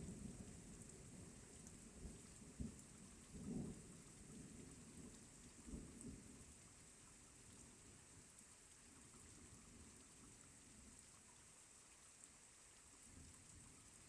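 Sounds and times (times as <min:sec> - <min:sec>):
faint steady rain: 0:00.0 - 0:14.0.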